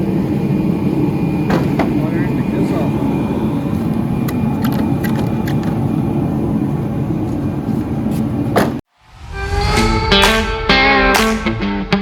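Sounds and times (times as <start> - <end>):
low rumbling noise: 0.0 - 12.0
guitar music: 9.4 - 12.0.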